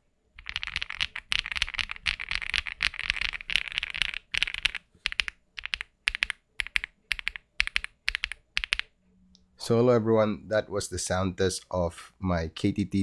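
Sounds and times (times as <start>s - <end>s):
mechanical keyboard typing: 0.4s - 9.0s.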